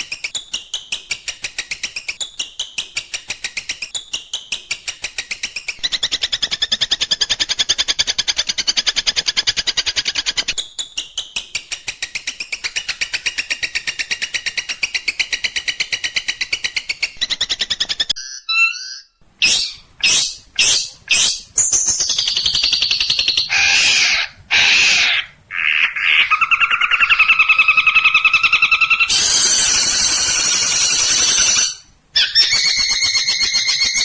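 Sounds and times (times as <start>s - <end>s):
bird song rapid sharp notes: 17.1s - 25.4s, 26.2s - 34.0s.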